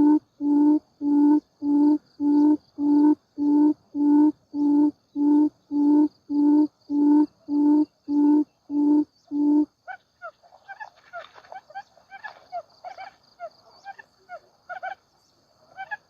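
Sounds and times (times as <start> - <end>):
low hooting quail call: 0.0 - 15.0.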